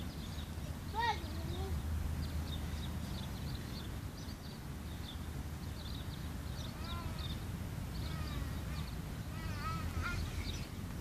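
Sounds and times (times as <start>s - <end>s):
small birds chirping: 0.0s - 11.0s
wavering bird call: 6.6s - 10.7s.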